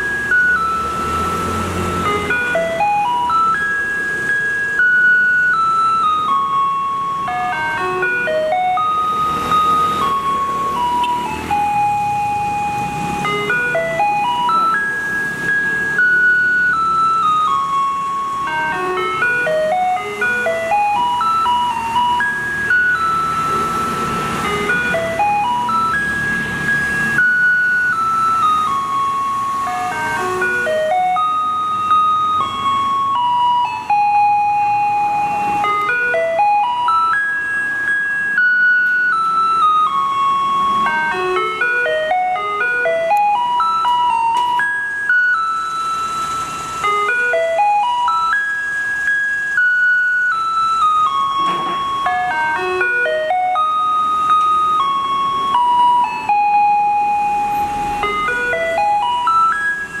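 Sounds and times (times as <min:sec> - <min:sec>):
electronic chime melody on loudspeaker: 0:00.0 - 1:00.0.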